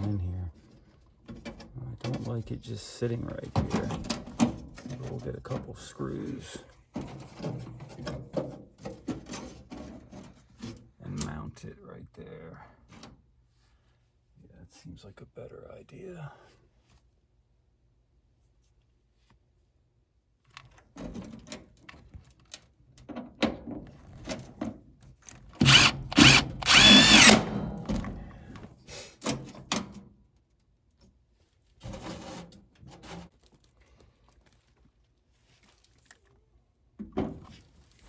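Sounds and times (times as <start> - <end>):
power drill whining: 25.6 - 27.5.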